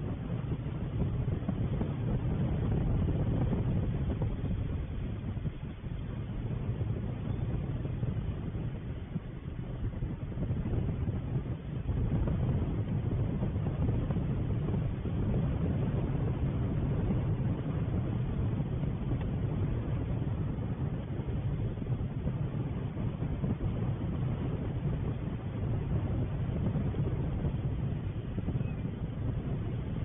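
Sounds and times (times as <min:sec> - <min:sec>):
steady low rumbling: 0:00.0 - 0:30.0.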